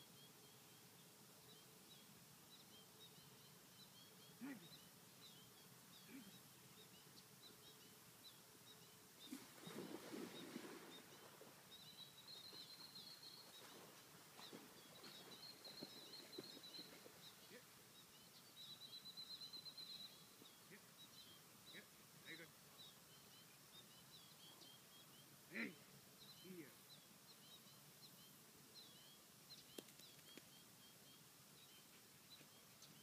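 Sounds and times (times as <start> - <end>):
bird chirping: 0.0 - 33.0
splash in water: 9.3 - 11.5.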